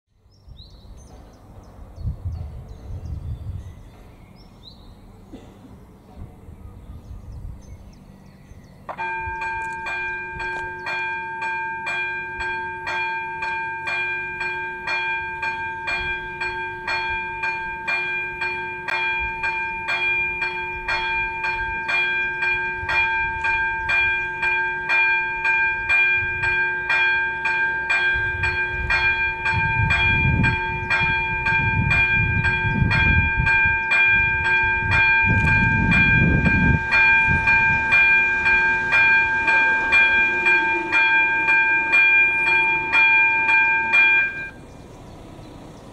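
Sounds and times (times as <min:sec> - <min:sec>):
train rumbling: 0:00.4 - 0:45.9
level crossing bell ringing: 0:09.0 - 0:44.6.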